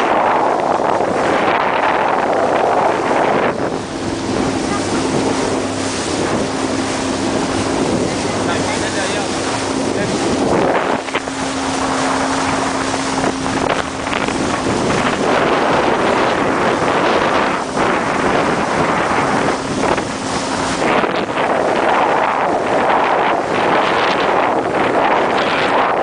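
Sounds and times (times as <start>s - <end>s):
motorboat engine hum: 0.0s - 26.0s
wind buffeting microphone: 0.0s - 26.0s.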